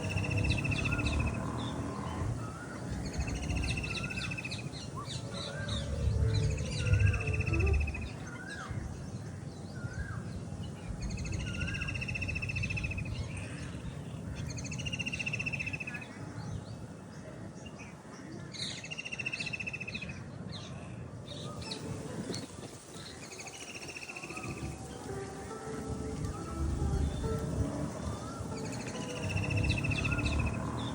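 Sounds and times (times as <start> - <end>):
bird chirps: 0.0 - 9.1, 26.2 - 30.9
steady low rumble: 0.0 - 9.2, 24.6 - 30.9.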